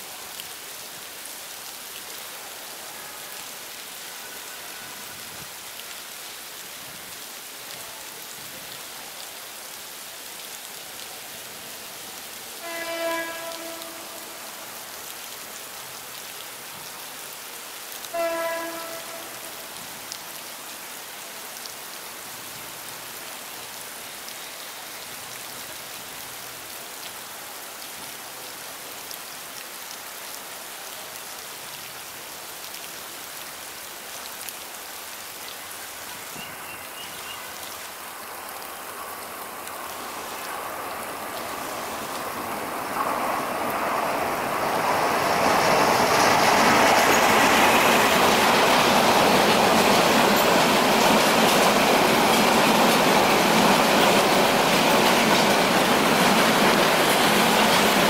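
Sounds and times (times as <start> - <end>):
steady rain falling: 0.0 - 58.0
locomotive horn blasts: 12.6 - 14.4, 18.1 - 19.6
approaching train: 38.0 - 58.0.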